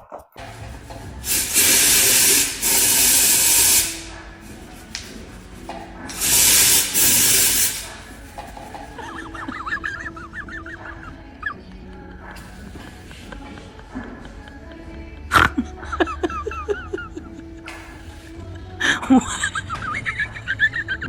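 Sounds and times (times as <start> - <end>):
hissing spray bursts: 0.4 - 9.4.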